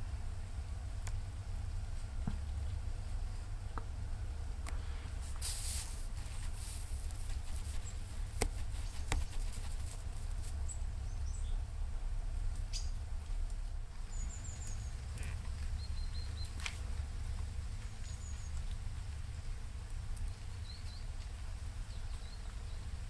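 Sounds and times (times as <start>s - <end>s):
steady low rumble: 0.0s - 23.0s
small birds chirping: 4.6s - 11.7s, 12.4s - 13.0s, 13.9s - 23.0s.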